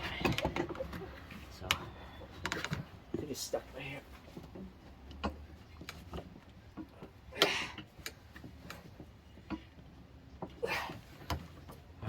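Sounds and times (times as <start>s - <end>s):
light clicks and knocks: 0.0s - 11.9s.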